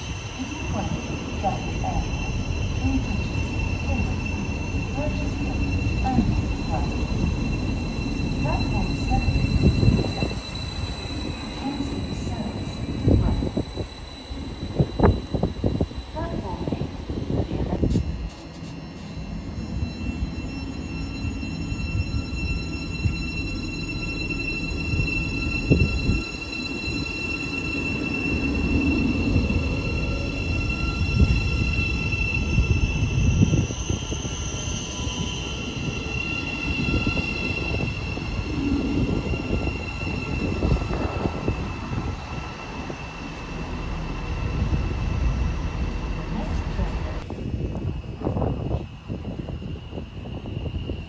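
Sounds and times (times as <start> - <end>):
high-pitched wheel squeal: 0.0 - 46.3
train wheels rumbling on rail: 0.0 - 51.0.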